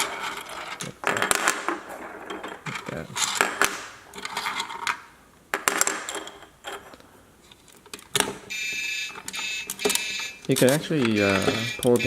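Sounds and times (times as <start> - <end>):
plastic toy parts clicking and rattling: 0.0 - 12.0.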